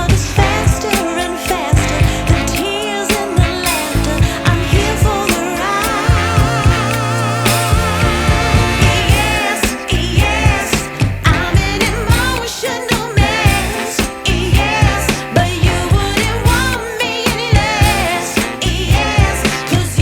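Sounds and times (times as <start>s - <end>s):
pulsing beat: 0.0s - 12.4s
vibrato singing voice: 0.0s - 20.0s.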